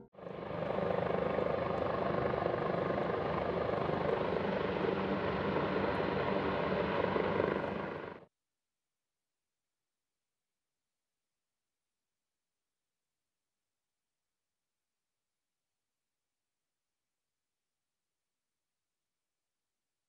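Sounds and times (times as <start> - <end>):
helicopter flying overhead: 0.1 - 8.3.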